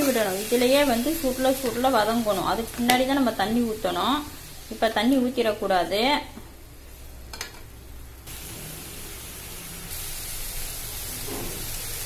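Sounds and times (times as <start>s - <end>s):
cabbage sizzling in oil: 0.0s - 5.2s, 8.3s - 12.0s.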